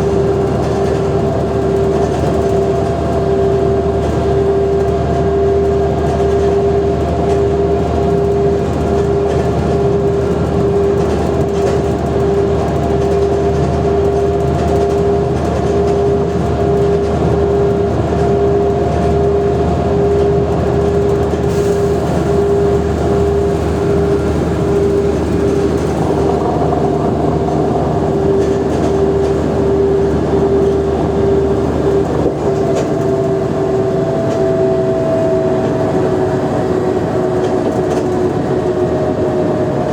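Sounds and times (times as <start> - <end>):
bus drivetrain whine: 0.0 - 39.9
bus engine rumble: 0.0 - 39.9.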